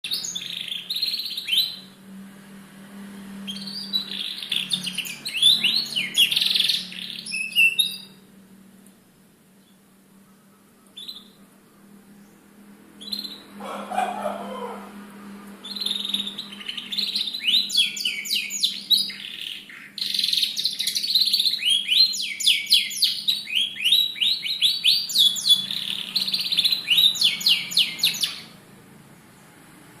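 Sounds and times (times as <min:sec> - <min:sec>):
canary singing trills: 0:00.0 - 0:02.0, 0:03.3 - 0:08.2, 0:09.6 - 0:11.4, 0:13.0 - 0:14.9, 0:15.6 - 0:28.6
faint steady hum: 0:06.0 - 0:17.4.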